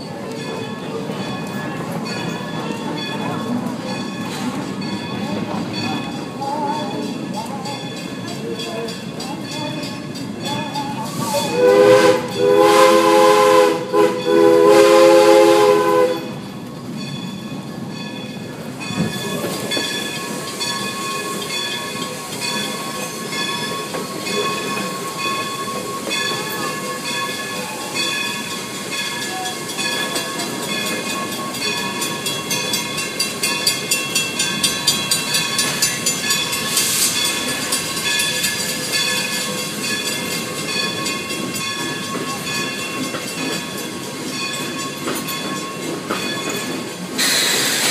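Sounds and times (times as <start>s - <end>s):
wheels clickety-clack: 0.0s - 14.3s, 16.1s - 47.9s
train coach rolling on rails: 0.0s - 47.9s
locomotive horn chord: 11.5s - 16.4s.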